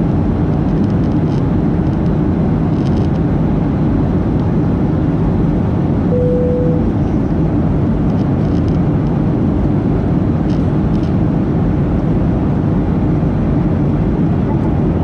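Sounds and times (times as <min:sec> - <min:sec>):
airplane cabin engine noise: 0:00.0 - 0:15.0
brief steady tone: 0:06.1 - 0:07.0.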